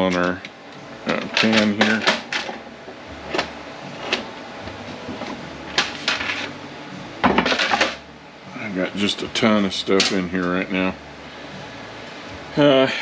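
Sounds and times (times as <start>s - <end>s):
metal clanks: 1.0s - 2.6s
metal parts and tools knocking: 1.1s - 2.6s.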